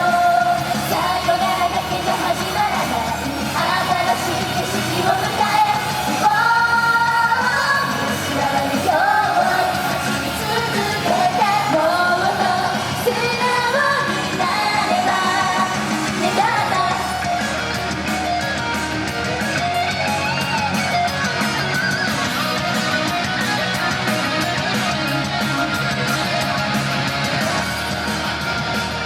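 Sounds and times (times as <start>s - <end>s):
group singing live: 0.0s - 18.4s
band backing track with guitar: 0.0s - 29.0s.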